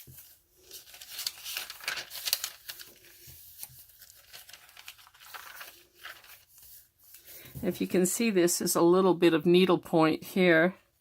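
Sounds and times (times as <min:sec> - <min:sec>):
paper rustling and crinkling: 0:00.0 - 0:07.8.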